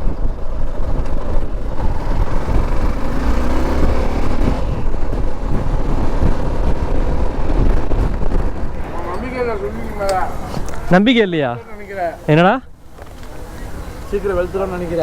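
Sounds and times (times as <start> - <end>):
vehicle engine running: 0.0 - 9.1
road noise: 0.0 - 15.0.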